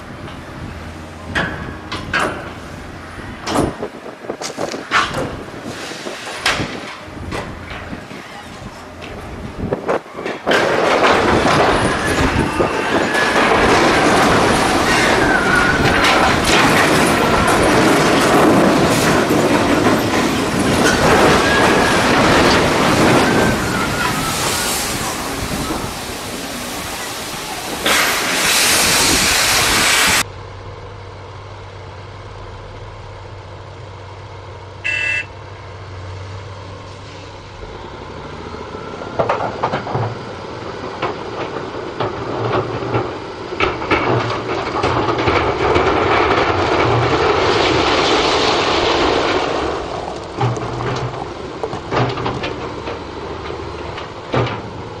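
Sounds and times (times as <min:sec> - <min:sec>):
passing train rumble: 0:00.0 - 0:55.0
high squeal: 0:11.7 - 0:13.6, 0:14.9 - 0:16.0, 0:23.1 - 0:26.0
short electronic beep: 0:34.8 - 0:35.3.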